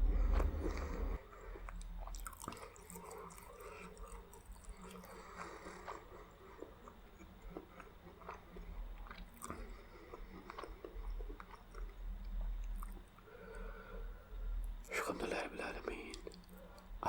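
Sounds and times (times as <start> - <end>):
chewing food: 0.0 - 17.0
wet mouth clicks and smacks: 1.7 - 5.2, 12.6 - 13.1.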